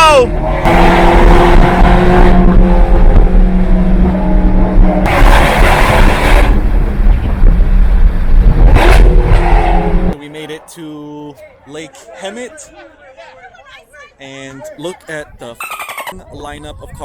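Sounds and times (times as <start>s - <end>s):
rush of noise: 0.0s - 10.2s
sports car engine running: 0.3s - 10.2s.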